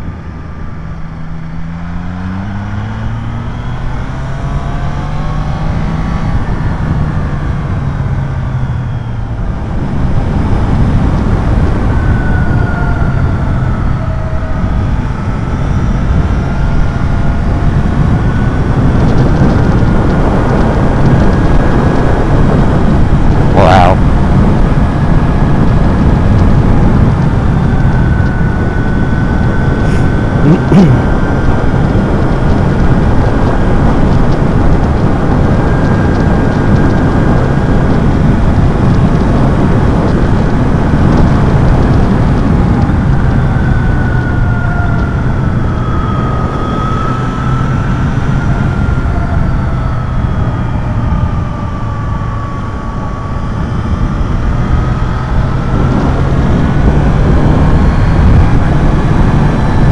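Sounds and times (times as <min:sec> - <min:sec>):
motorcycle engine: 0:00.0 - 0:59.9
wind noise on microphone: 0:00.0 - 0:59.9.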